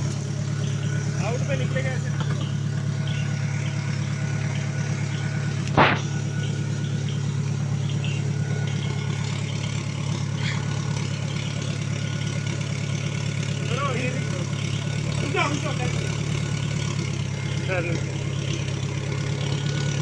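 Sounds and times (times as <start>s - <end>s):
car engine idling: 0.0s - 20.0s
loud burst of noise: 5.6s - 6.7s.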